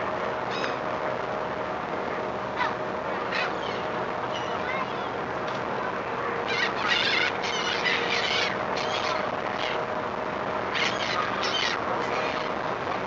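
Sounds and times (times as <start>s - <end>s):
seagulls calling: 0.5s - 0.9s, 2.6s - 5.1s, 6.4s - 9.9s, 10.7s - 12.6s.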